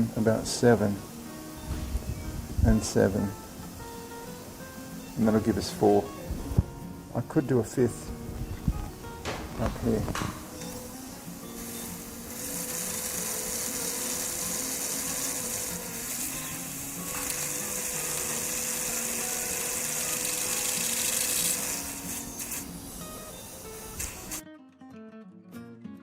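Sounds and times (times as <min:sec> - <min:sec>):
quiet background music: 0:00.0 - 0:26.0
surgical suction hissing: 0:09.6 - 0:24.4.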